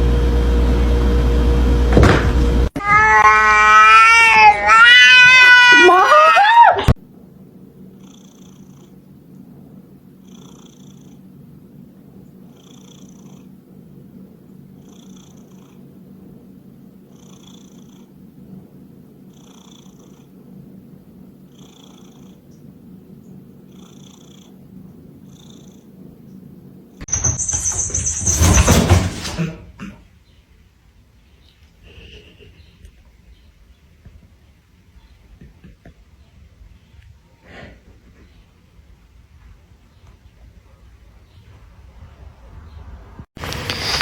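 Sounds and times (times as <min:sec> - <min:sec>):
cat purring: 0:07.8 - 0:09.2, 0:10.1 - 0:16.4, 0:17.0 - 0:18.3, 0:19.1 - 0:26.1.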